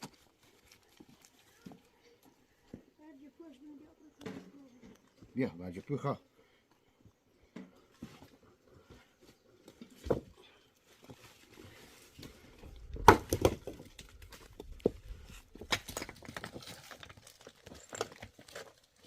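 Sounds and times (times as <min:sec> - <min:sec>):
objects knocking and clattering: 0:15.6 - 0:18.7.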